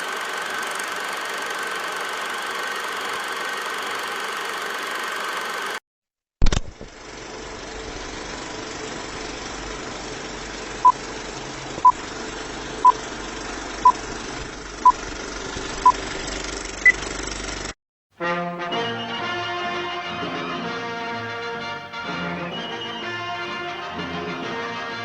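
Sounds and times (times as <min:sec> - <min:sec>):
engine-like rumble: 0:06.8 - 0:17.7.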